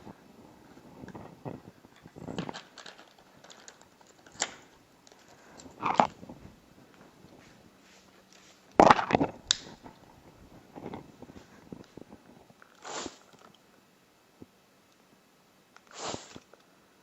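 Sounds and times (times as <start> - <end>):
spray bottle squirts: 12.8 - 13.4, 15.9 - 16.4.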